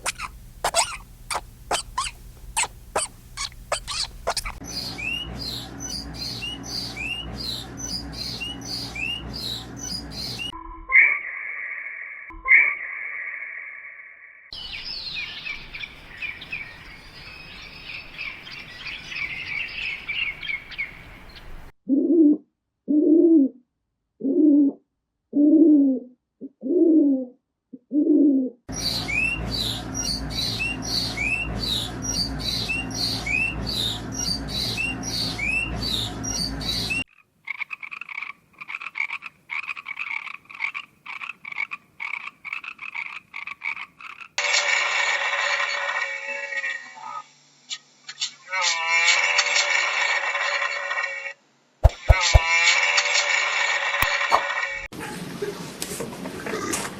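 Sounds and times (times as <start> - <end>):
low croaking calls: 0.0 - 10.5, 28.7 - 44.4
quick rising chirps: 0.0 - 10.5
high chirping: 0.0 - 10.6.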